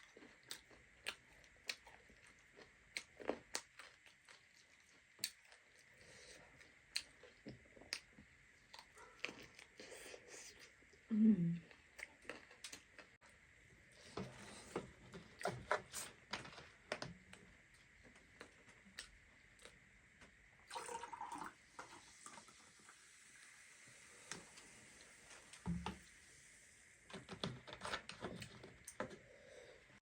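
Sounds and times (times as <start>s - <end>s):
chewing and lip-smacking: 0.0s - 10.8s, 11.6s - 13.2s.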